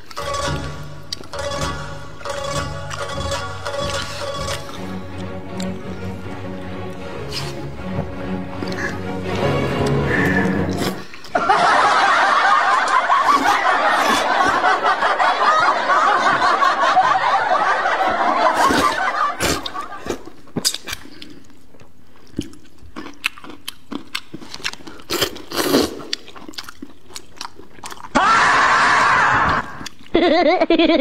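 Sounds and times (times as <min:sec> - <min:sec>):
people laughing: 0:11.3 - 0:20.3, 0:28.2 - 0:31.0
chewing and crunching noodles: 0:18.6 - 0:28.2, 0:29.7 - 0:30.2.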